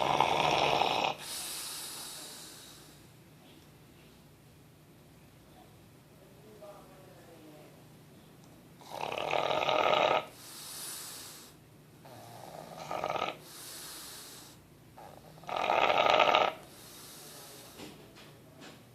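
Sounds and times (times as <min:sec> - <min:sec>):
dog snoring: 0:00.0 - 0:02.8, 0:08.8 - 0:17.8
soft airy breath: 0:01.2 - 0:04.3, 0:10.3 - 0:12.4, 0:13.4 - 0:14.7, 0:16.6 - 0:18.1.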